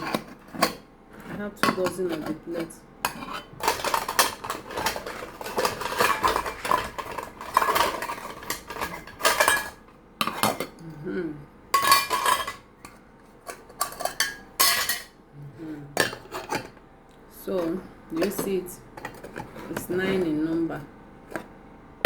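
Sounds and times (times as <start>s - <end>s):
plates clattering: 1.6s - 10.8s, 11.8s - 15.2s, 16.0s - 16.8s, 17.6s - 20.3s.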